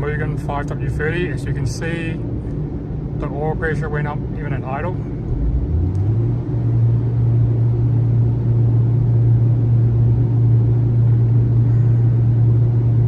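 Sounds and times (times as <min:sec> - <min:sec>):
car engine revving on a dyno: 0:05.2 - 0:11.5.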